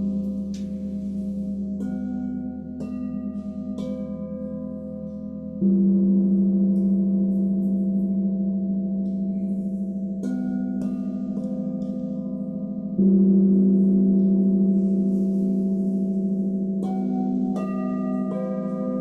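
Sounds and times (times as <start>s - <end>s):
singing bowls ringing: 0.0s - 19.0s.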